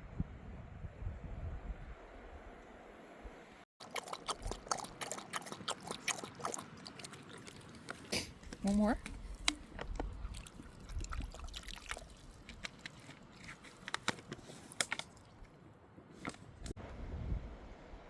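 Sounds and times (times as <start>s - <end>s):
wind on microphone: 0.0s - 3.4s, 8.9s - 12.4s, 16.5s - 18.0s
dog crunching a treat: 9.2s - 15.4s.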